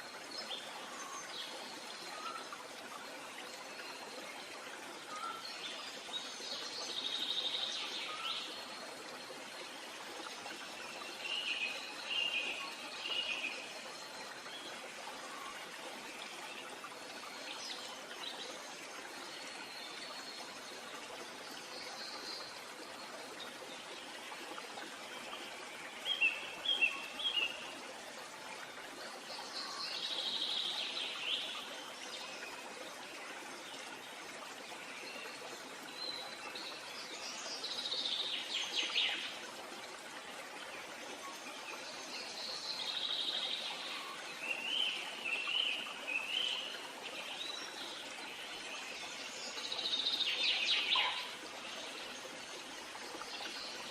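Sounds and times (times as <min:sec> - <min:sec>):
wild birds calling: 0:50.8 - 0:51.4.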